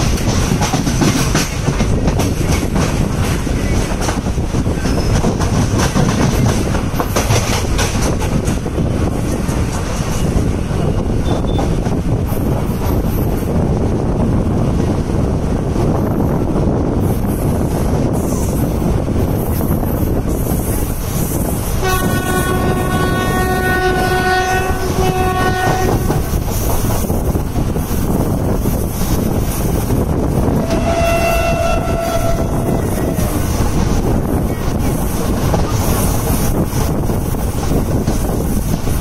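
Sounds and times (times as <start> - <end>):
train running noise: 0.0 - 39.0
train horn blast: 21.8 - 26.2, 30.5 - 33.5.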